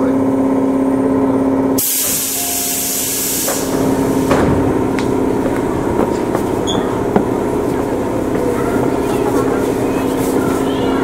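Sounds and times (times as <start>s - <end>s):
electric train humming: 1.7s - 11.0s
compressed air hissing: 1.8s - 4.3s.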